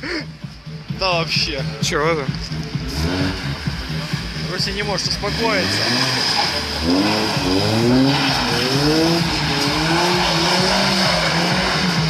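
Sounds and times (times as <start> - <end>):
car engine revving: 0.4 - 12.0.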